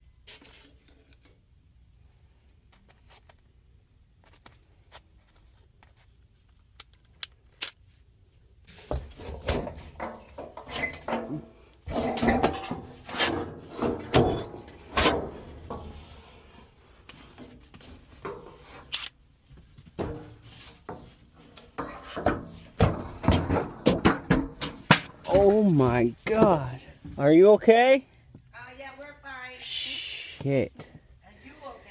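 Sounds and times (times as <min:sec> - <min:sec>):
bangs scrapes and clattering knocks: 0:08.7 - 0:18.8, 0:19.9 - 0:25.3.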